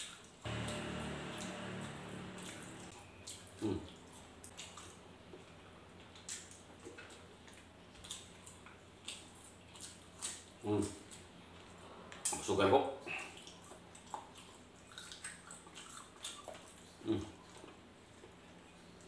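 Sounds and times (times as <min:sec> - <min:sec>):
held low tone: 0:00.5 - 0:02.9
wet chewing and mouth clicks: 0:02.4 - 0:12.4, 0:13.2 - 0:17.8.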